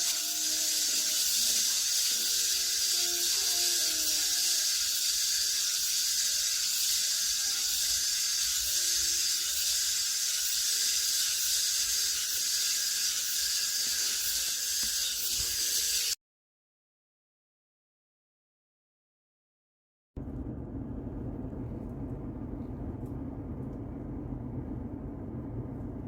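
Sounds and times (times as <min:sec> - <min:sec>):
cicadas buzzing: 0:00.0 - 0:16.2.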